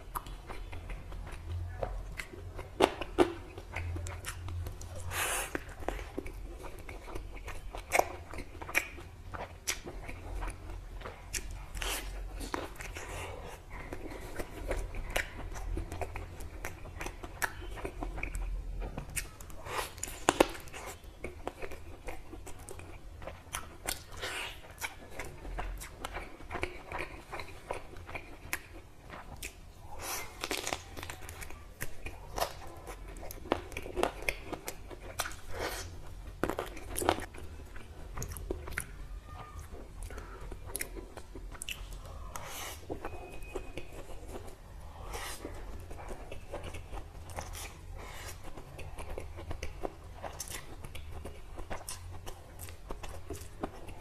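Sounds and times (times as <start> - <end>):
mouth chewing sounds: 0.0 - 54.0.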